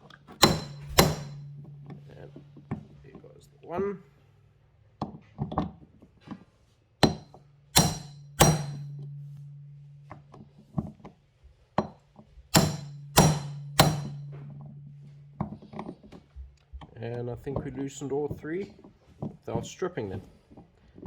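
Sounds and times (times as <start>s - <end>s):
hammer ringing metallic blows: 0.4s - 3.0s, 7.0s - 10.5s, 12.5s - 15.9s.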